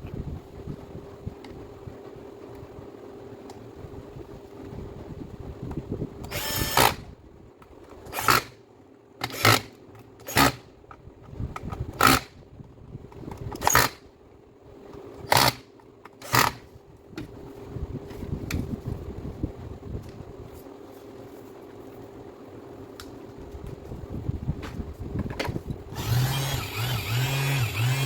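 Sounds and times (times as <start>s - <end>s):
faint steady hum: 0.0s - 28.0s
sander motor bursts: 6.3s - 7.0s, 25.9s - 28.0s.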